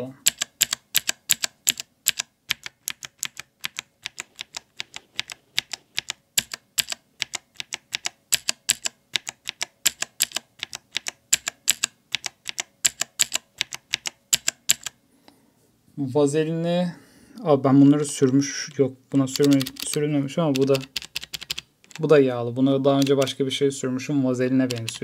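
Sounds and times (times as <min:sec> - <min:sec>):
mechanical keyboard key clicks: 0:00.2 - 0:15.0, 0:19.4 - 0:22.0, 0:24.7 - 0:25.0.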